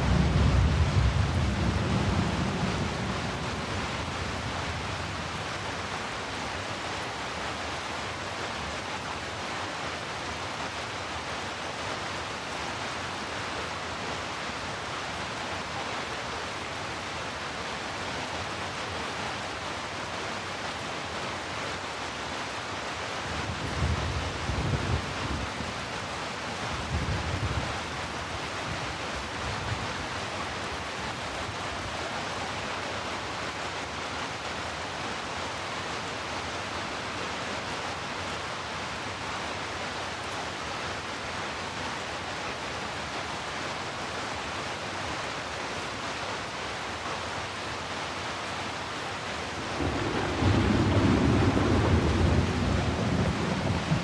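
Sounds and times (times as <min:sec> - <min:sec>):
thunder rumbling: 0:00.0 - 0:04.2, 0:49.6 - 0:54.0
heavy rain: 0:00.0 - 0:54.0.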